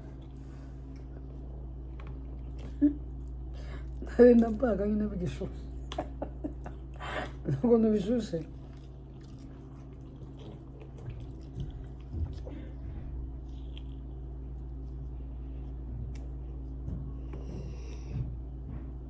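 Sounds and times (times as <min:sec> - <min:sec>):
wet squishing and chewing: 0:00.0 - 0:04.9, 0:05.6 - 0:18.2
steady low hum: 0:00.0 - 0:19.0.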